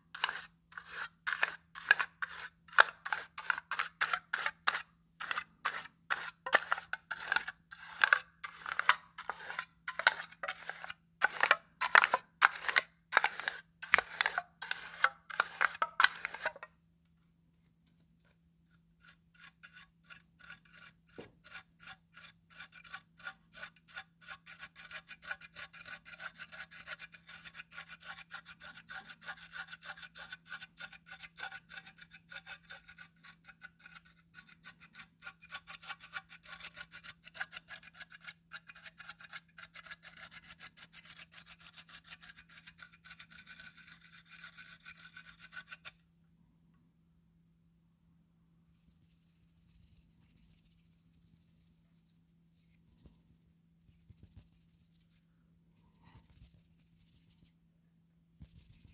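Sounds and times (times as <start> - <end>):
comb rasping across paper: 0.1 - 16.6, 18.2 - 46.0.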